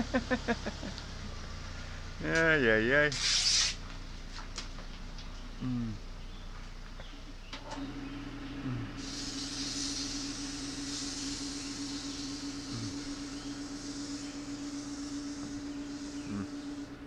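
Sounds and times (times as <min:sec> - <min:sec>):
wood lathe motor hum: 0:00.0 - 0:02.2, 0:07.7 - 0:17.0
high hiss of cutting wood: 0:03.1 - 0:03.8, 0:08.6 - 0:17.0.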